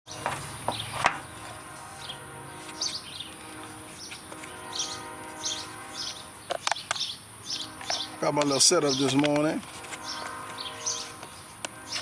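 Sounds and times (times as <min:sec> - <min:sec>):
high-pitched hum: 0:00.1 - 0:12.0
small birds chirping: 0:00.1 - 0:12.0.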